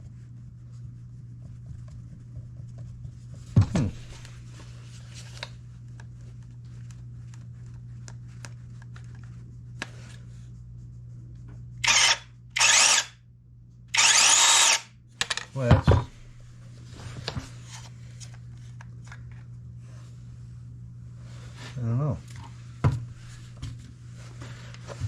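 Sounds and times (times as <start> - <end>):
low steady hum: 0.0 - 25.0
electric chainsaw motor and chain: 11.8 - 13.1, 13.9 - 14.9.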